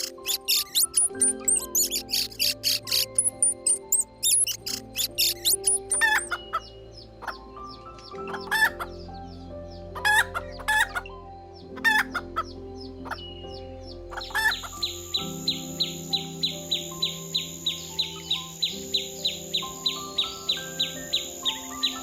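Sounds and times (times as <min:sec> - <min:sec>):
soft background music: 0:00.0 - 0:22.0
chicken clucking: 0:06.0 - 0:09.0, 0:10.0 - 0:11.1, 0:11.8 - 0:13.3.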